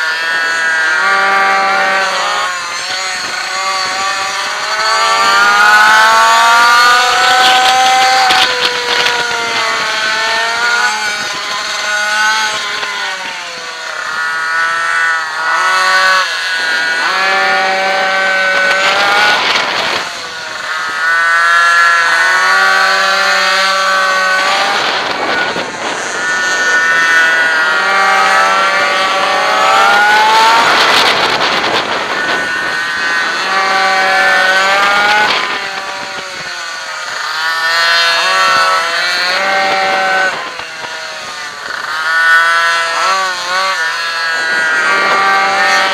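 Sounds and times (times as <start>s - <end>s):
two-stroke engine accelerating: 0.0s - 45.9s.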